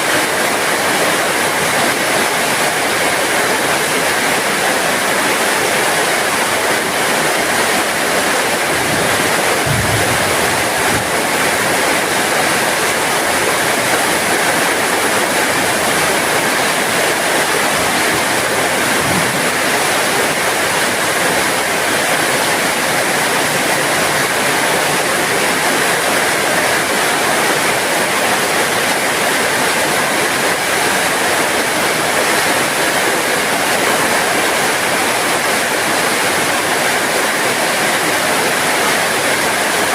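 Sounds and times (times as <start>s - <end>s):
heavy rain falling: 0.0s - 39.9s
faint low thumps: 9.6s - 11.0s.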